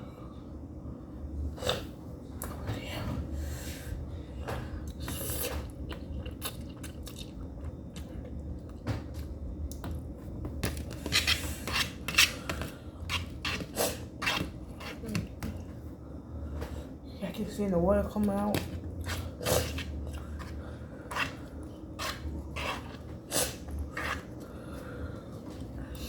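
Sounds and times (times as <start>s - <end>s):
person chewing: 4.9s - 8.8s, 19.0s - 20.6s
utensil scraping bowl: 11.0s - 15.3s, 18.6s - 24.4s.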